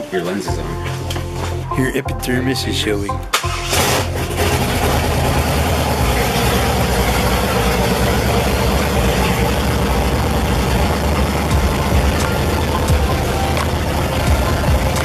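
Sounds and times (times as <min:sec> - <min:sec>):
loud car engine idling: 0:03.6 - 0:15.0.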